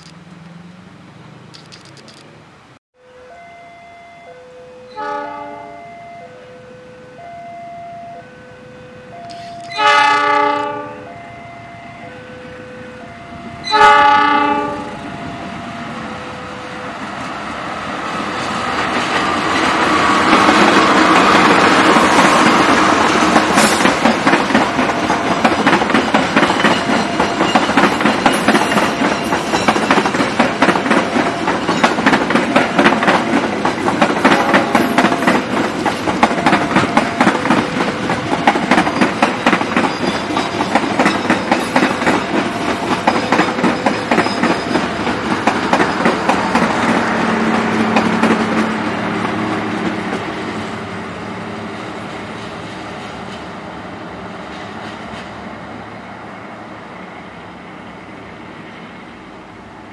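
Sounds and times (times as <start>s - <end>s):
train wheels clacking over rail joints: 18.7s - 50.4s.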